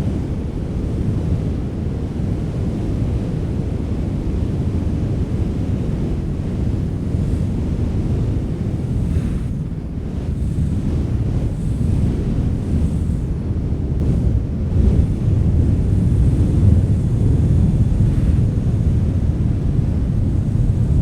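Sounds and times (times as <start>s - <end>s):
strong wind blowing: 0.0s - 21.0s.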